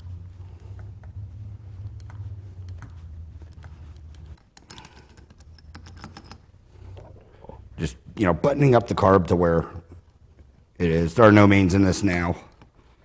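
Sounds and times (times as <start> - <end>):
steady low hum: 0.0 - 13.0
small metal parts clicking: 3.6 - 6.5.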